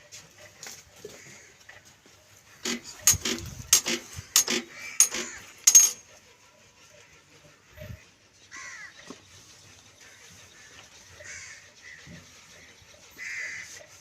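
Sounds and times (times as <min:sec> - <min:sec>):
clinks and knocks on metal: 0:02.7 - 0:06.1.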